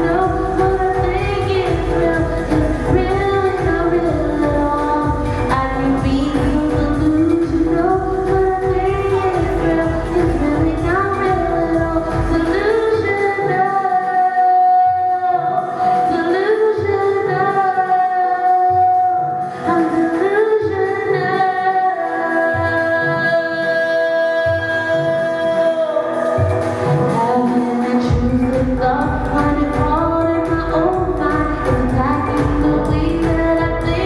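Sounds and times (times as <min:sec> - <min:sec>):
pulsing bass beat: 0:00.0 - 0:13.1, 0:28.1 - 0:34.0
electronic pop backing track: 0:00.0 - 0:34.0.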